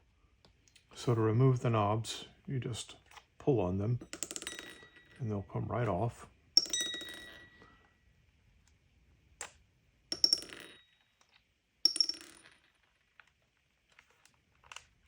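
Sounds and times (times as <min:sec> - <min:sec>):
knobs clinking on hard surface: 0:04.0 - 0:05.5, 0:06.6 - 0:07.8, 0:10.1 - 0:13.4.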